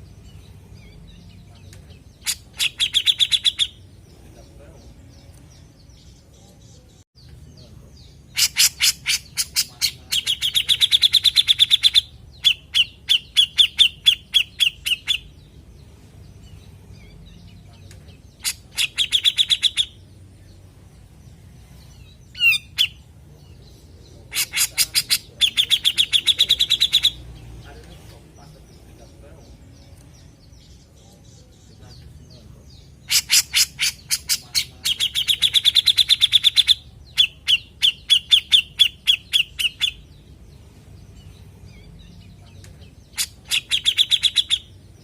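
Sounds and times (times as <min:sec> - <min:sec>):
bird harsh chattering calls: 0:02.0 - 0:04.0, 0:08.1 - 0:15.5, 0:18.3 - 0:20.1, 0:22.0 - 0:27.4, 0:32.7 - 0:40.2, 0:41.7 - 0:45.0.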